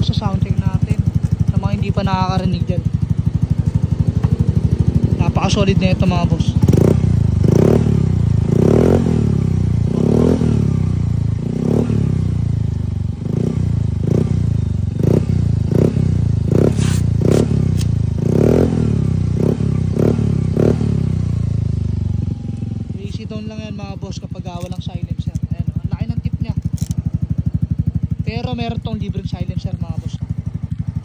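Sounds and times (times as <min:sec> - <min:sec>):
scooter engine revving: 0:00.0 - 0:31.0.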